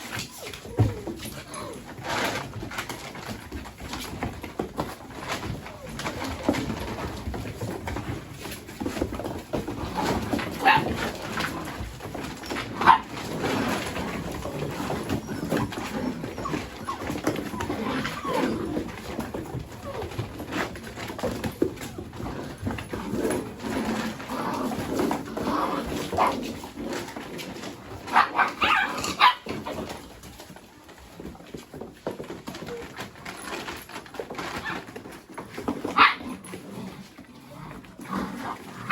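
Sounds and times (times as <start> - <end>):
puppies yipping and whining: 0.0 - 9.0, 10.0 - 31.1
puppies scuffling and bumping: 0.0 - 38.9
puppies yelping: 12.4 - 18.9, 28.1 - 29.8.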